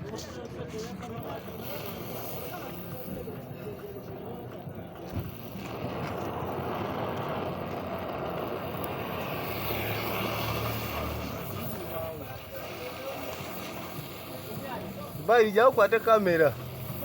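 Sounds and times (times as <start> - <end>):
vehicle engine running: 1.3 - 17.0
deeper rumble: 4.1 - 14.5.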